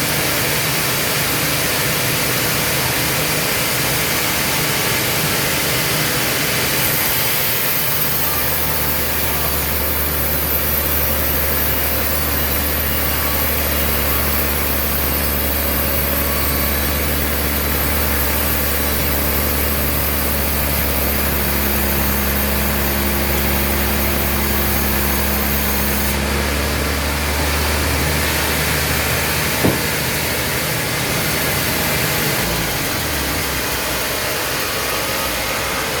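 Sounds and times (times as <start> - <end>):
sawmill machinery humming: 0.0 - 36.0
sharp knock: 29.6 - 30.2.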